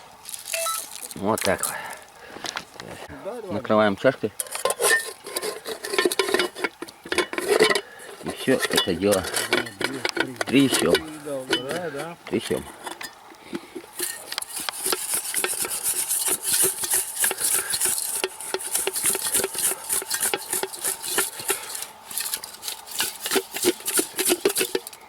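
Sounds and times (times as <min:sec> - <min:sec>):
fish and salt shaken in a bowl: 0:14.0 - 0:25.0.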